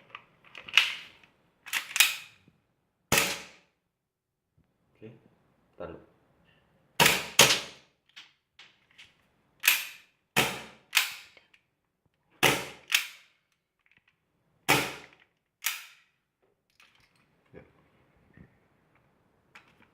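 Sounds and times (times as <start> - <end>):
airsoft gun shots: 3.1 - 3.6, 7.0 - 7.8, 10.4 - 11.1, 12.4 - 13.0, 14.7 - 15.1.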